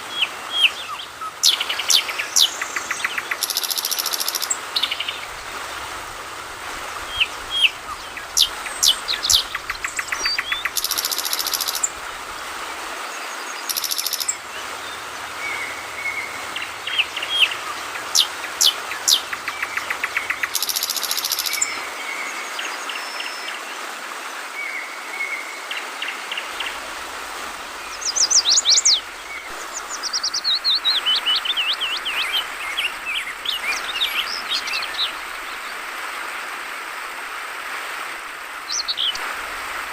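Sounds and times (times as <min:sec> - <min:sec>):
flowing water: 0:00.0 - 0:39.9
bird chirping and calling: 0:00.6 - 0:05.2, 0:07.1 - 0:11.9, 0:13.7 - 0:14.4, 0:15.5 - 0:21.7.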